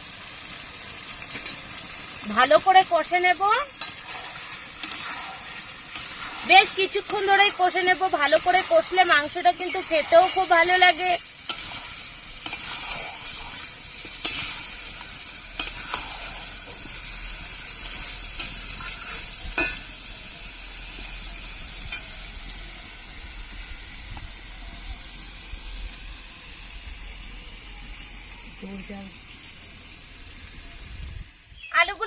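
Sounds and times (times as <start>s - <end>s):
meat sizzling in oil: 0.0s - 32.0s
spoon clinking against pan: 19.5s - 19.9s.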